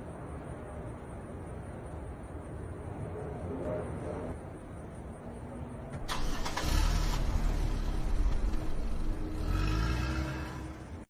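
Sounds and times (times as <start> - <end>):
vehicle engine rumbling loudly: 6.0 - 11.0.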